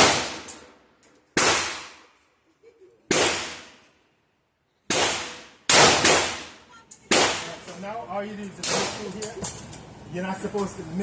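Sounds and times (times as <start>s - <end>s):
gunshots: 0.0s - 0.5s, 1.4s - 2.1s, 3.1s - 3.8s, 4.9s - 7.7s, 8.6s - 9.1s.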